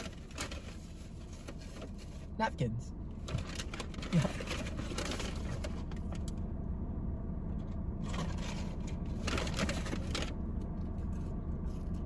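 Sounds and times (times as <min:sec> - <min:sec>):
paper bag rustling: 0:03.4 - 0:05.9.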